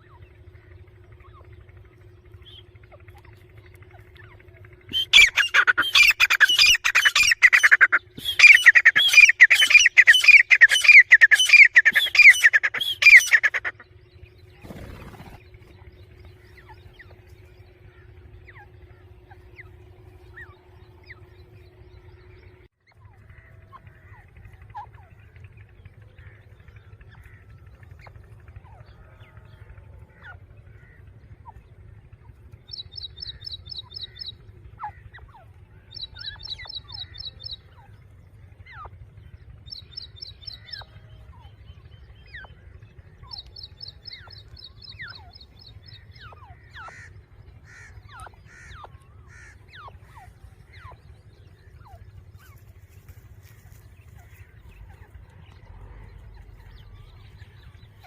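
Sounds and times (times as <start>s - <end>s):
birds chirping: 0.0s - 58.0s
low outdoor rumble: 0.0s - 58.0s
high pulsed bird trill: 4.8s - 23.1s, 35.9s - 38.1s.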